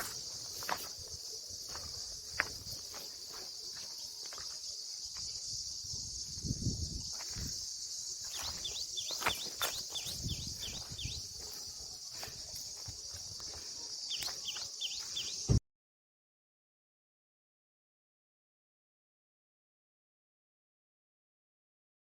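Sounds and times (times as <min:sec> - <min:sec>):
bird chirping: 0:00.0 - 0:12.6, 0:13.4 - 0:15.6
high insect drone: 0:00.0 - 0:15.6.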